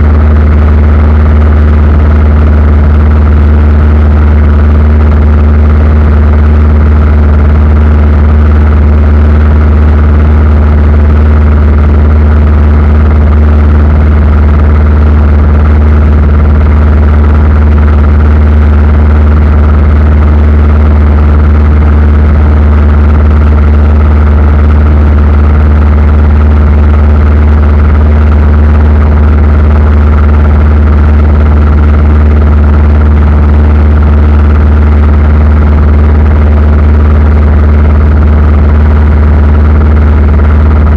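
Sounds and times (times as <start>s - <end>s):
aircraft engine drone: 0.0s - 32.0s, 35.6s - 40.9s.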